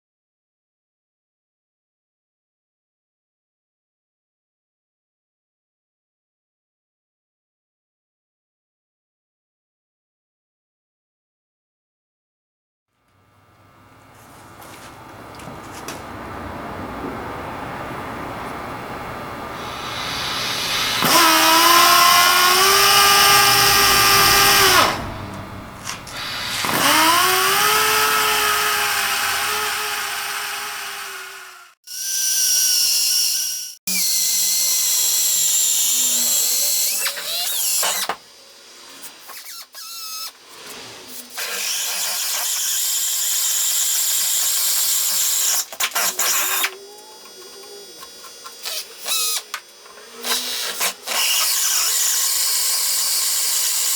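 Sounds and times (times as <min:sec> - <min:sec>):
power tool motor whining: 0:13.0 - 0:53.9.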